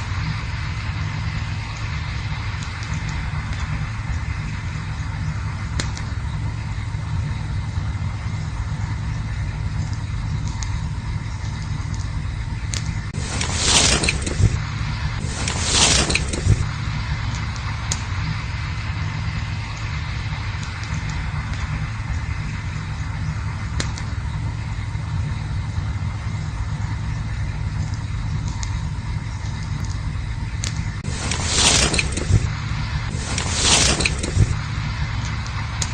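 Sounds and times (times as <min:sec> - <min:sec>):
campfire crackling: 0:00.0 - 0:35.9
low rumble: 0:00.0 - 0:35.9
rushing hiss: 0:13.2 - 0:22.4, 0:31.0 - 0:35.9.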